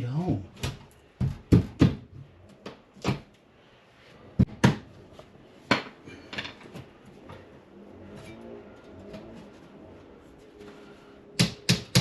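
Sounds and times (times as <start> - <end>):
knocks on drywall: 0.6 - 2.2.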